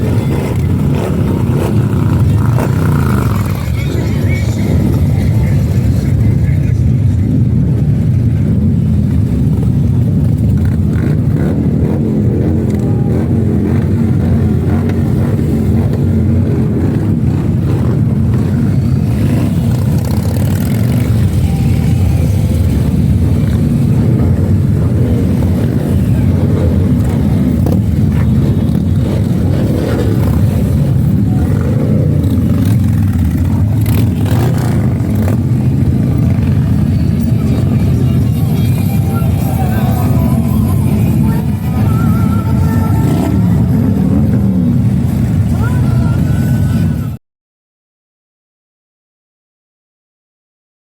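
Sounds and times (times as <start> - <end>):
motorcycle engines rumbling: 0.0 - 47.2.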